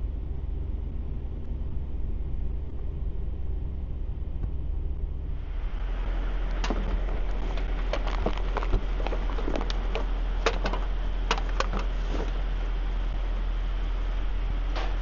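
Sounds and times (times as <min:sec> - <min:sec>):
truck engine humming: 0:00.0 - 0:15.0
clicks and rattles: 0:06.4 - 0:12.4.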